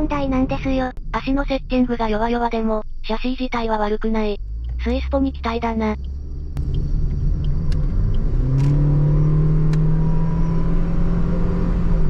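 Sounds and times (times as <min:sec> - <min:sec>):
road rumble: 0:00.0 - 0:12.0
car engine from inside cabin: 0:04.4 - 0:12.0.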